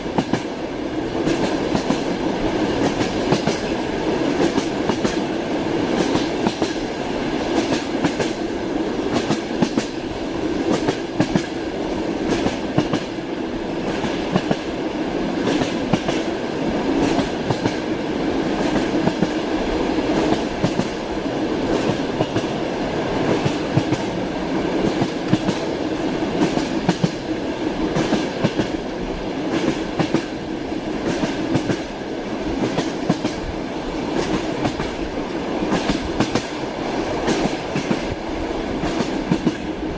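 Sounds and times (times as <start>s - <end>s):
train carriage rumble: 0.0s - 39.9s.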